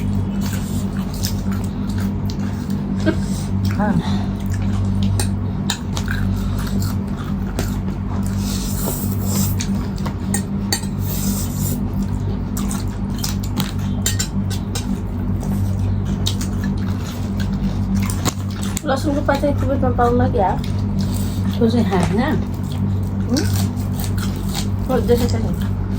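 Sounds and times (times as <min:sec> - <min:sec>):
steady low hum: 0:00.0 - 0:25.9
cutlery and plates clinking: 0:14.0 - 0:15.0.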